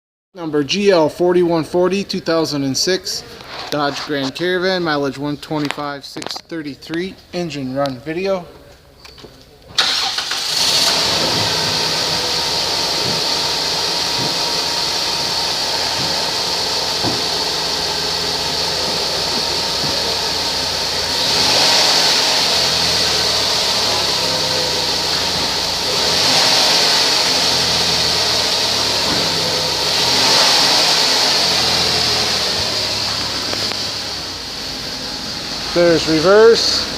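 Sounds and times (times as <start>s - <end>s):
car engine starting and idling: 9.7s - 36.9s
car engine revving: 9.8s - 36.9s.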